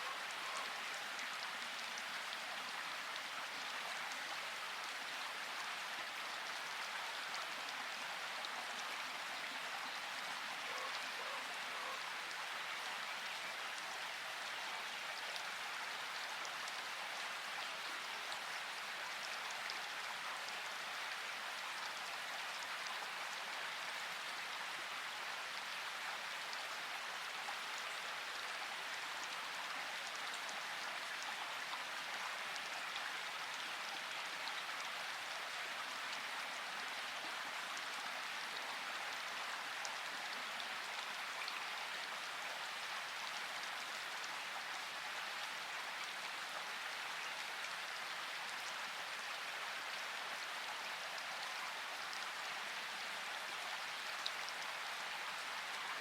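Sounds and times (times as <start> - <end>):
steady rainfall: 0.0 - 56.0.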